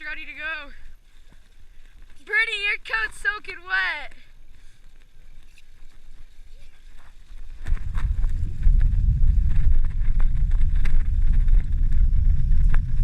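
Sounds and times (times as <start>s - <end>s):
bicycle ticks and rattles: 0.0s - 13.0s
wind buffeting microphone: 7.0s - 13.0s.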